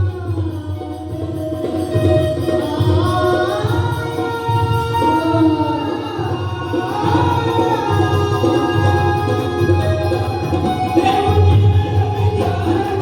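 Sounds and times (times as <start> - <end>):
devotional singing: 0.0 - 13.0
steady drum beat: 0.0 - 13.0.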